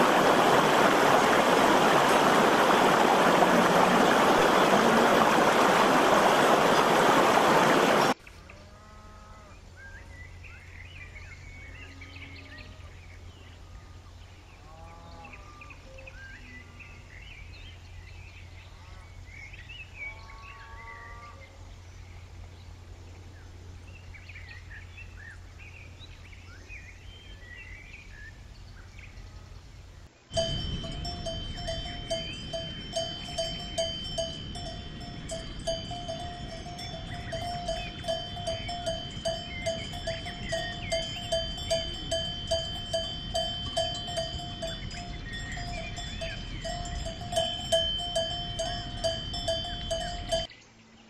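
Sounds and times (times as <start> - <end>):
livestock bleating: 20.1 - 21.5
low hum: 29.4 - 50.5
cowbell clanking: 30.3 - 50.5.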